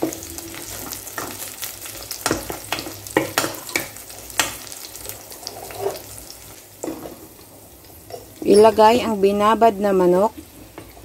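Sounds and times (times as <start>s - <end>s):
chicken skin sizzling in oil: 0.0s - 11.0s
utensil scraping against pot: 5.3s - 6.2s.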